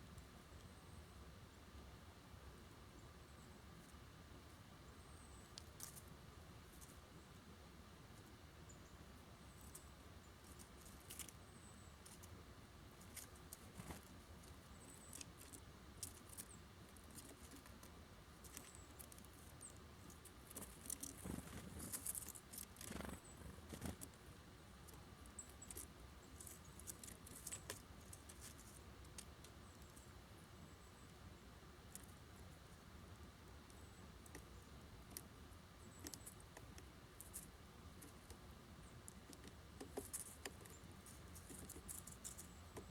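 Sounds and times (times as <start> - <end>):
birds tapping at seed feeder: 8.2 - 31.2, 31.8 - 42.9.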